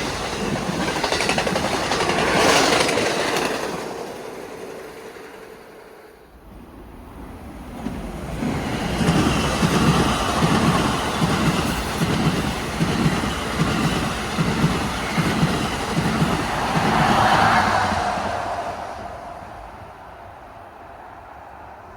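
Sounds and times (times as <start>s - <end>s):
train wheels clicking over rail joints: 0.0s - 6.1s, 7.7s - 18.2s.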